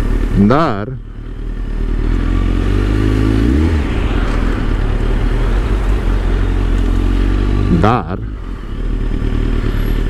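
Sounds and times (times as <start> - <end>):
motorcycle engine at low revs: 0.0 - 3.9, 6.0 - 10.0.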